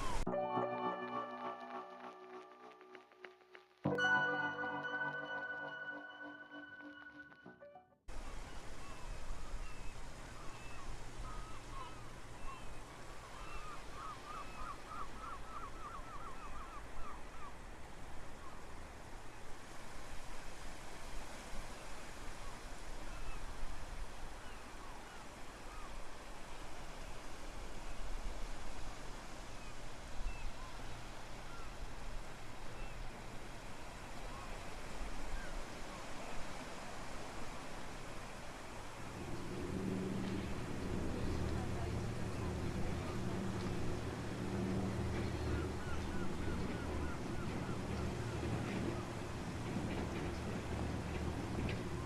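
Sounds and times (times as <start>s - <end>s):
steady wash of noise: 30.9s - 52.0s
low hum: 39.0s - 52.0s
low motor rumble: 39.0s - 52.0s.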